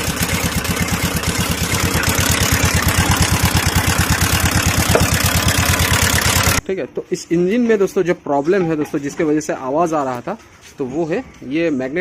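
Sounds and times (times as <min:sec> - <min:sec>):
rattling noise: 0:00.0 - 0:06.6
scooter engine idling: 0:00.0 - 0:06.6.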